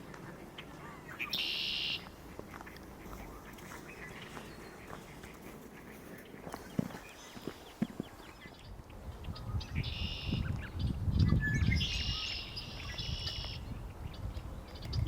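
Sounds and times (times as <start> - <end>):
bird calling high-pitched: 0.6 - 13.7.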